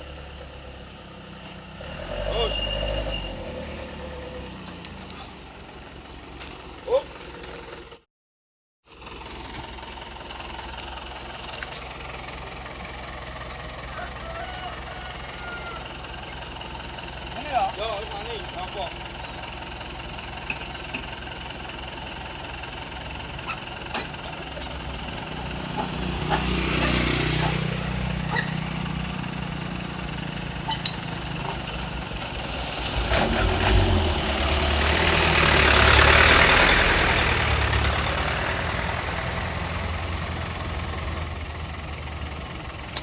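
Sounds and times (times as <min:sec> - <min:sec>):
truck engine running: 0:08.9 - 0:43.0.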